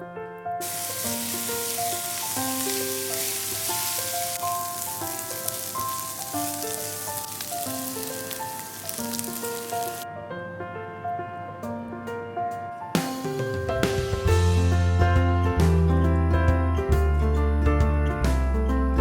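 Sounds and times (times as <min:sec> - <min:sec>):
piano music: 0:00.0 - 0:19.0
liver sizzling in a pan: 0:00.6 - 0:10.0.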